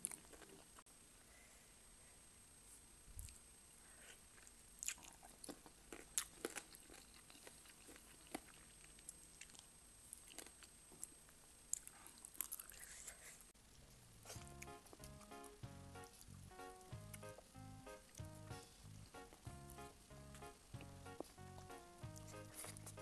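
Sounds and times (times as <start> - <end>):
chewing and crunching: 0.0 - 0.8, 4.3 - 13.0, 13.8 - 15.3, 20.8 - 23.0.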